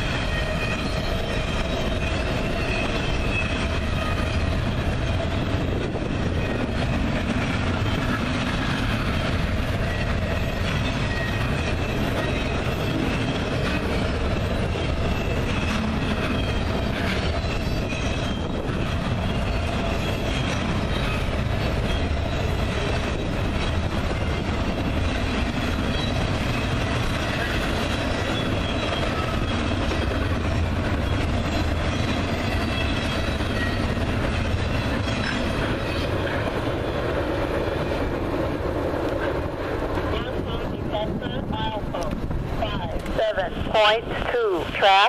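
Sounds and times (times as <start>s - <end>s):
high-pitched wheel squeal: 0.0s - 4.5s, 7.8s - 22.5s
train wheels rumbling on rail: 0.0s - 45.0s.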